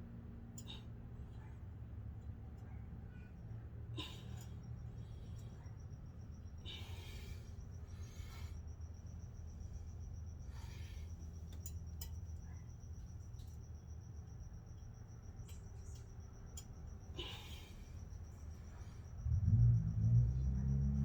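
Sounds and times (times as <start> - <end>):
low hum: 0.0 - 21.0
soft breaths: 0.6 - 13.6, 15.7 - 19.3.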